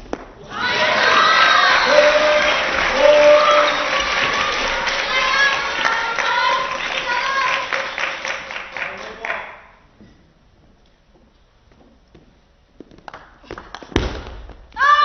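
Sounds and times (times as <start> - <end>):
voices calling out together: 0.4 - 7.7
crowd cheering and clapping: 0.4 - 9.6.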